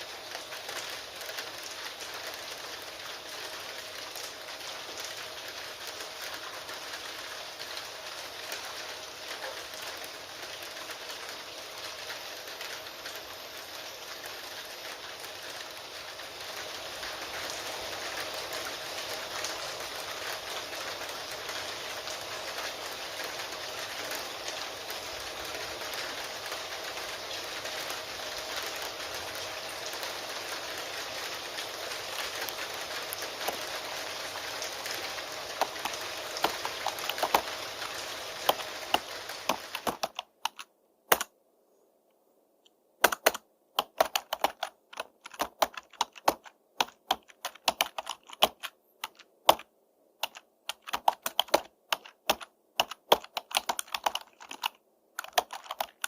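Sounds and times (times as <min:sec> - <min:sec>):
steady rain: 0:00.0 - 0:41.4, 0:42.7 - 0:56.0
computer keyboard typing: 0:32.0 - 0:33.8, 0:34.8 - 0:41.3, 0:43.0 - 0:56.0.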